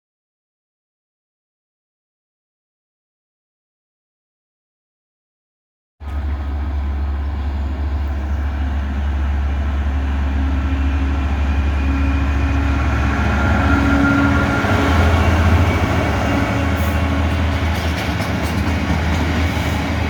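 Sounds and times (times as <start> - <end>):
train rumbling: 6.0 - 20.0.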